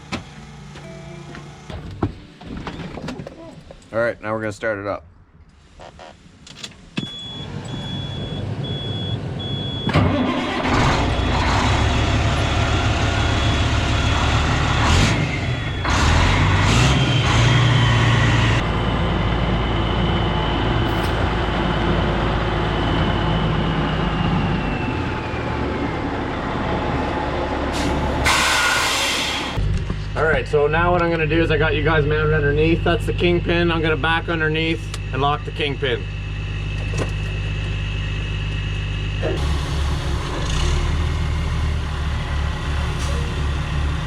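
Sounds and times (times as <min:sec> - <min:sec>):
intermittent beep: 0:07.0 - 0:09.9
diesel engine cranking and running: 0:07.1 - 0:44.0.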